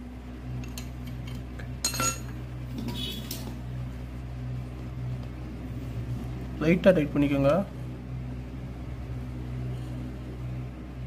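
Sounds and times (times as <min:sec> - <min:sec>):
steady low hum: 0:00.0 - 0:11.0
metallic clinks of stove fittings: 0:00.6 - 0:02.3.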